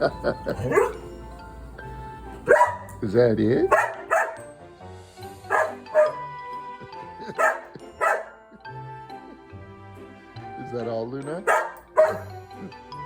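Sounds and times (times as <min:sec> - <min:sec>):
background music with held notes: 0:00.0 - 0:13.0
dog barking: 0:00.6 - 0:01.1, 0:02.4 - 0:03.0, 0:03.7 - 0:04.5, 0:05.4 - 0:06.3, 0:07.3 - 0:08.4, 0:11.4 - 0:12.4.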